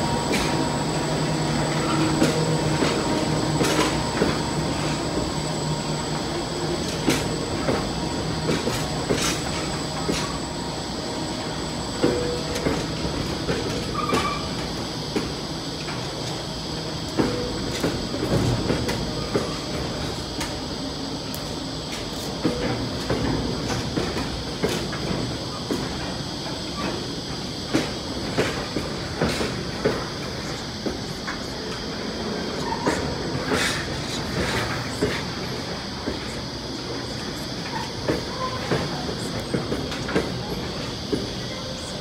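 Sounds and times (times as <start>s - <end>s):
freight train wheels clicking: 0.0s - 42.0s
faint wheel squeal: 13.9s - 14.6s.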